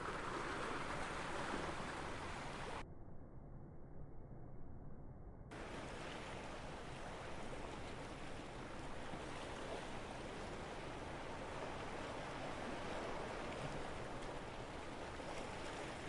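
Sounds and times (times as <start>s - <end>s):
sea water washing against shore: 0.0s - 2.8s, 5.5s - 16.0s.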